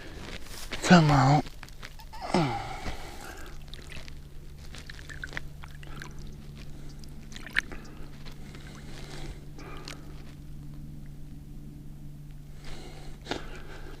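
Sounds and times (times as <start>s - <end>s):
steady low hum: 0.0s - 14.0s
water sloshing and splashing: 3.2s - 10.0s.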